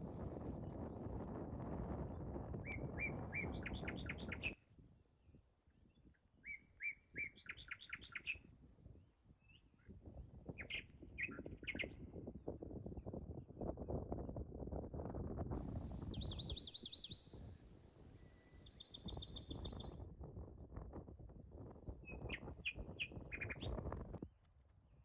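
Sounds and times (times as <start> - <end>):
songbird singing: 2.1 - 4.6, 5.2 - 8.5, 9.4 - 12.0, 15.6 - 20.0, 22.0 - 24.0.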